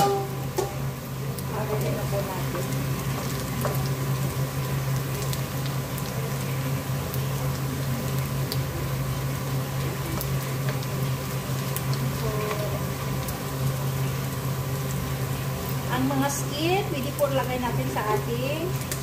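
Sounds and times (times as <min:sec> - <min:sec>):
wooden spatula turning food: 0:00.0 - 0:07.7
chicken skins sizzling in fat: 0:00.0 - 0:19.0.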